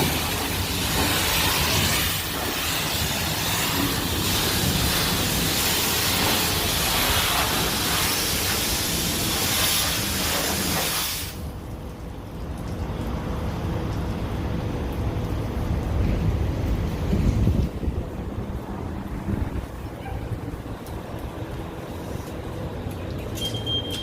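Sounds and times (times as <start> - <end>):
hissing water spray: 0.0 - 11.6.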